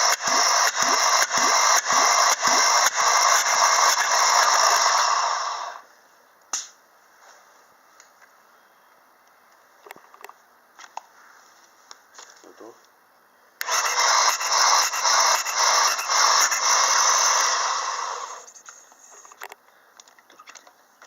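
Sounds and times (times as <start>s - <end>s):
engine starter whirring: 0.0s - 5.8s, 13.6s - 18.5s.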